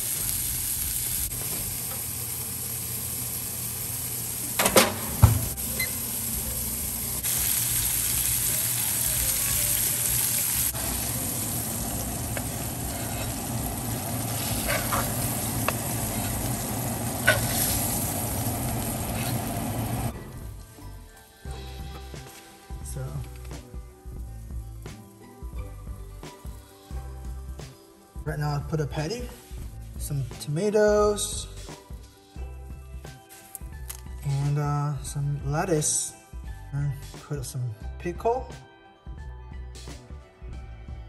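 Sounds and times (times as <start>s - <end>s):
patties sizzling in a skillet: 0.0s - 27.8s.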